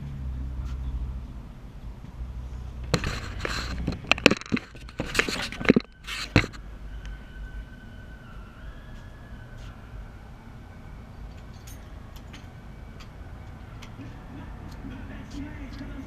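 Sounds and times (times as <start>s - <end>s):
metal tools clanking and scraping: 3.0s - 6.6s.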